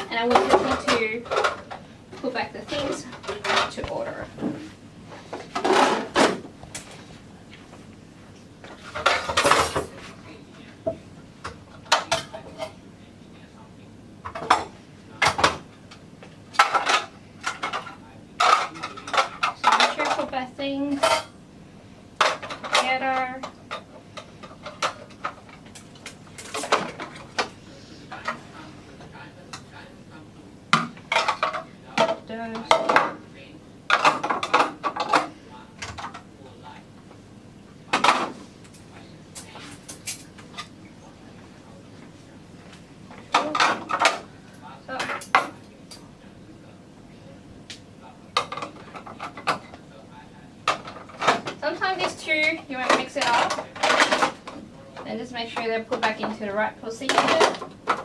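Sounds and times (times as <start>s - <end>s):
dishes and utensils clattering: 0.0s - 7.0s, 8.6s - 10.2s, 10.9s - 12.8s, 14.2s - 15.7s, 16.5s - 21.4s, 22.2s - 29.9s, 30.7s - 33.2s, 33.9s - 36.3s, 37.9s - 41.1s, 43.1s - 44.3s, 48.3s - 49.9s, 50.6s - 58.0s
kitchenware clinking on a counter: 16.6s - 21.4s, 30.7s - 33.2s, 50.7s - 58.0s.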